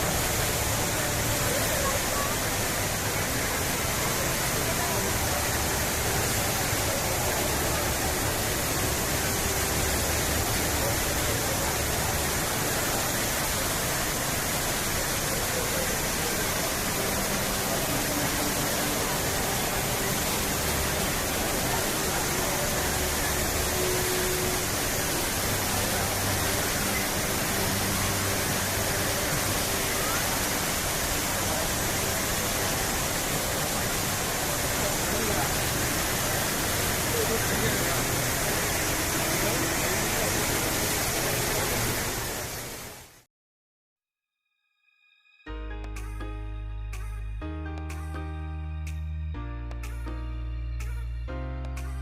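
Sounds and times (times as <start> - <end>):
water pouring down waterfall: 0.0 - 43.2.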